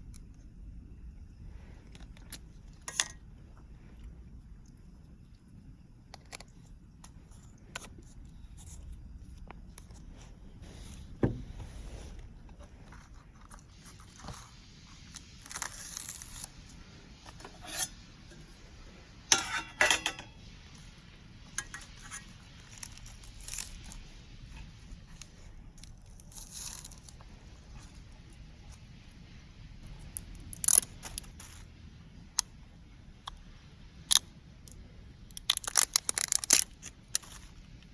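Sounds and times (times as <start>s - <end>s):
cookware and dishes clinking: 19.3s - 20.4s.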